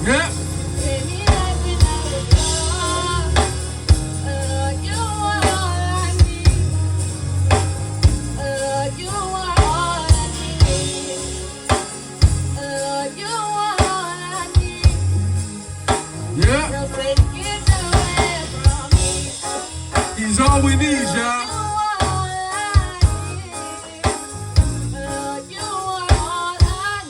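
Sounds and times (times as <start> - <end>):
drum kit hits: 0.0 - 8.6, 9.6 - 12.6, 15.9 - 25.0
heavy bass line: 0.0 - 12.8, 14.6 - 23.6, 24.2 - 25.3.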